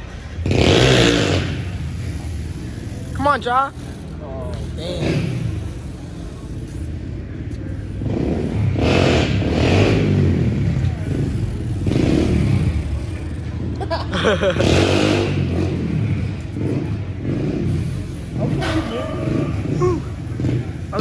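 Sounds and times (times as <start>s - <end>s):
motorcycle engines revving: 0.0s - 21.0s
people shouting: 18.4s - 21.0s.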